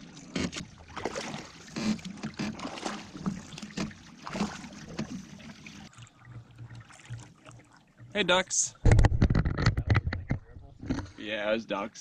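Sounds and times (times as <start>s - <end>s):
paddles splashing in water: 0.0s - 8.4s
water lapping at hull: 0.0s - 11.2s.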